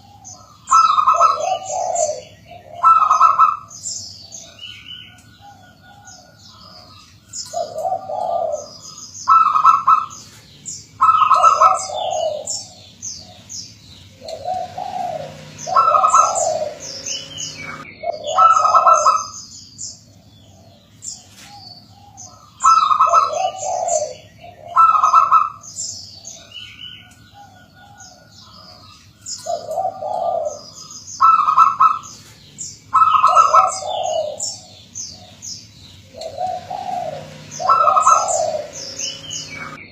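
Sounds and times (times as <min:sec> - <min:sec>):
doves cooing: 0:00.0 - 0:19.4, 0:20.0 - 0:39.9
small birds chirping: 0:00.0 - 0:39.9.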